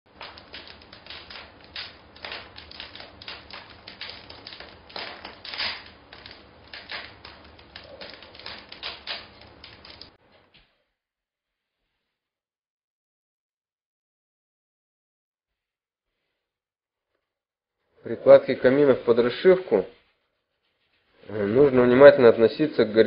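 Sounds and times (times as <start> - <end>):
rapid irregular clicking and tapping: 0.1 - 10.2.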